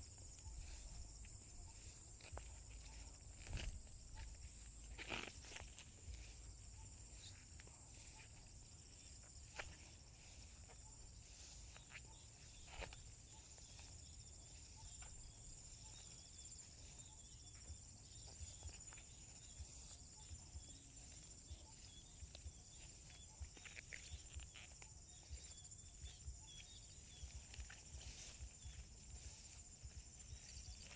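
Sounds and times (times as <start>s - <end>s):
insect chorus trilling: 0.0s - 30.9s
soft footsteps: 0.0s - 30.9s.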